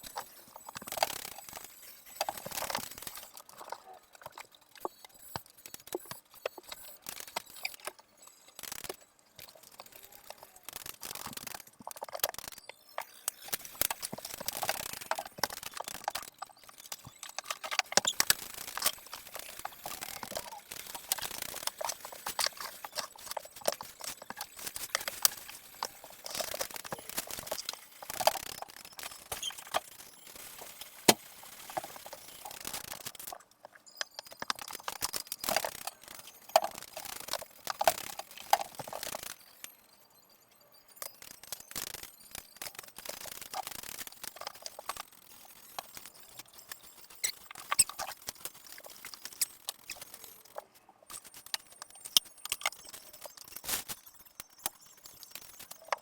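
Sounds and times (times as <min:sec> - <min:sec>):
objects clattering and rustling: 0:00.0 - 0:08.0, 0:08.6 - 0:39.4
small knocks and clicks: 0:54.3 - 0:56.0.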